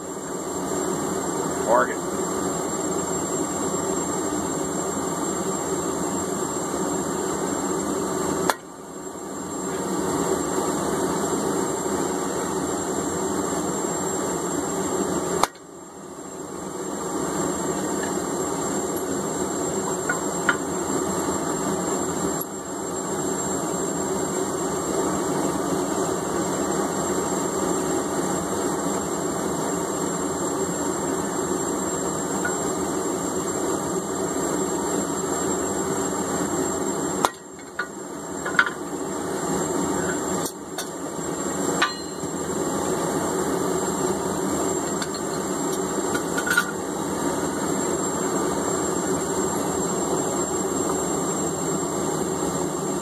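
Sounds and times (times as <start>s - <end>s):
sharp metal strikes: 41.8s - 42.4s.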